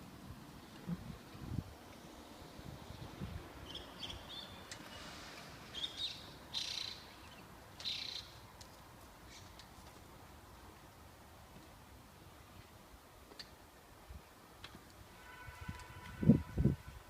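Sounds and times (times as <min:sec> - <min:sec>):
faint bird chirping: 0:02.0 - 0:08.4.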